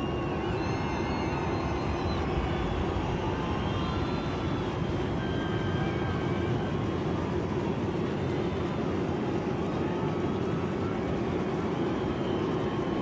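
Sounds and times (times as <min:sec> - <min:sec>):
wavering whistles: 0:00.0 - 0:05.8.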